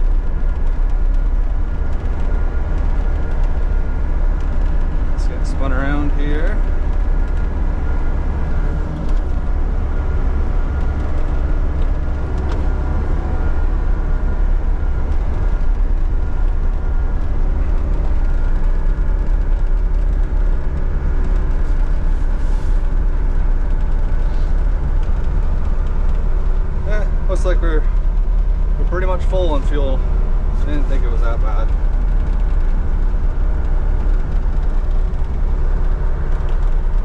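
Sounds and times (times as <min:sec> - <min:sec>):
excavator diesel engine running: 0:00.0 - 0:37.0.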